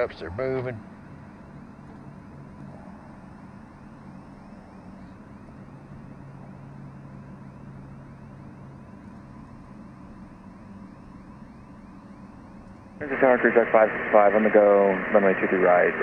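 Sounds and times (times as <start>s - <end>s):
aircraft engine hum: 0.0s - 16.0s
low steady hum: 0.0s - 16.0s
cockpit airflow: 11.9s - 16.0s.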